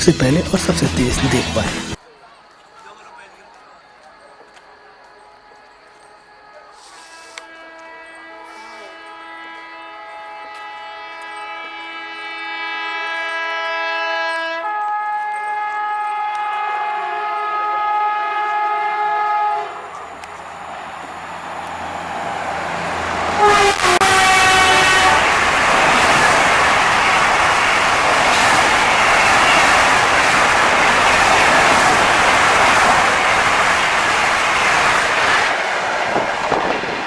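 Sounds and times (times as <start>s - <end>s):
train rumbling past: 4.7s - 37.0s
locomotive horn blast: 6.2s - 33.3s.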